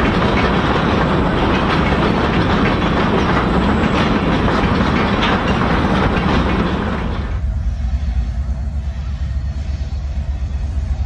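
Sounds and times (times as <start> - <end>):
wheels clicking over rail joints: 0.0 - 7.5
freight train rumble: 0.0 - 11.0.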